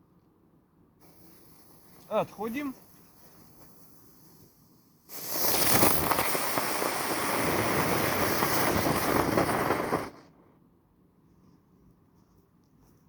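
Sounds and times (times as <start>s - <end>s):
spinning firework hissing and crackling: 1.0s - 10.5s.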